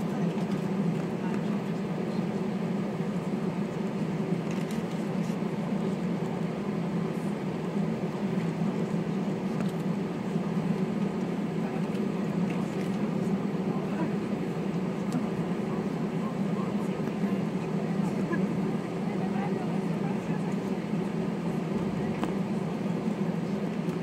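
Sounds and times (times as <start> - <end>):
aircraft cabin engine hum: 0.0 - 24.0.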